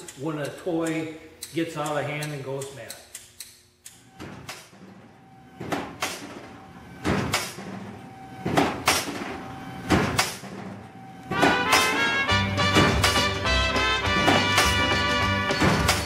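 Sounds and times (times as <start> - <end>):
music: 11.3 - 16.0.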